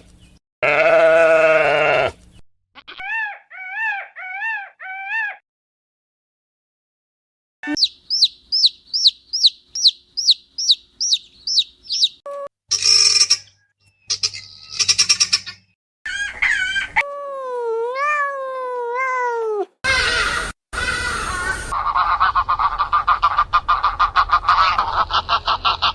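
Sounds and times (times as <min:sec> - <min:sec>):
high falling peeps: 0:07.6 - 0:13.0
long wavering bird call: 0:07.7 - 0:12.2
harsh bird calls: 0:07.7 - 0:15.5.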